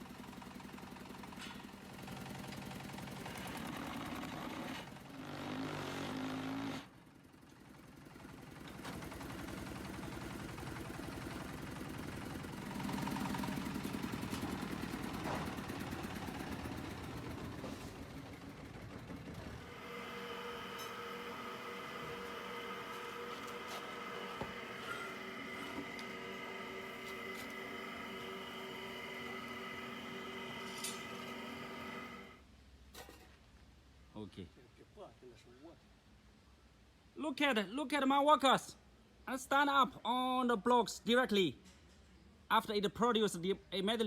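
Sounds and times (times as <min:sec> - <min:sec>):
diesel engine running: 0:00.0 - 0:32.4.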